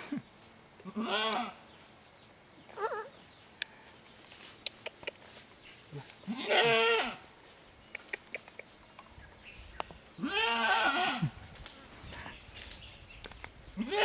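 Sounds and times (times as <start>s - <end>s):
goat bleating: 0.8s - 1.6s, 6.2s - 7.2s, 10.2s - 11.3s, 13.8s - 14.0s.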